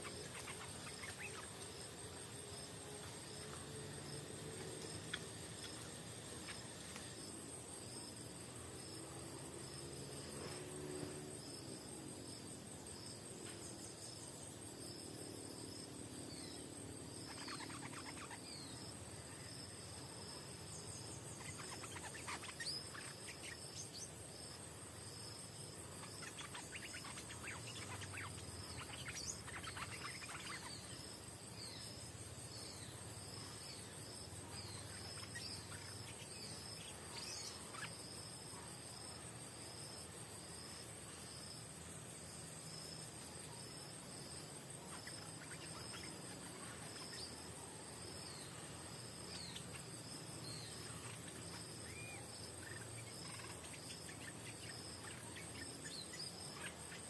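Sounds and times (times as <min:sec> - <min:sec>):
bird calls: 0:00.0 - 0:01.8, 0:17.3 - 0:18.8, 0:26.0 - 0:31.0
insects buzzing: 0:00.0 - 0:57.0
rapidly repeating insect chirp: 0:00.0 - 0:57.0.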